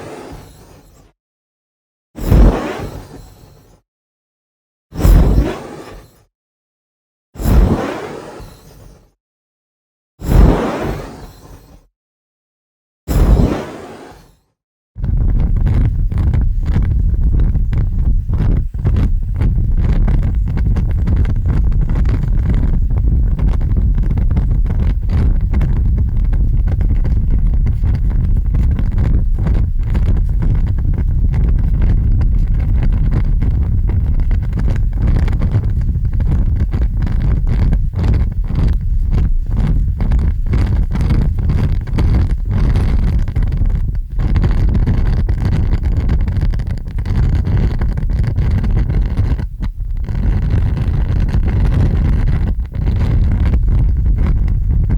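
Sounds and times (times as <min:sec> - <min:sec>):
large fire rumbling: 0:15.0 - 0:54.9.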